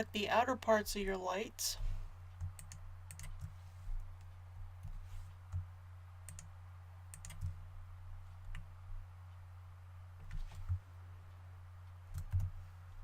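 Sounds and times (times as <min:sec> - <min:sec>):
low steady hum: 0:00.0 - 0:13.0
computer mouse clicks: 0:02.4 - 0:03.6, 0:04.2 - 0:06.5, 0:07.1 - 0:07.6, 0:11.8 - 0:12.6.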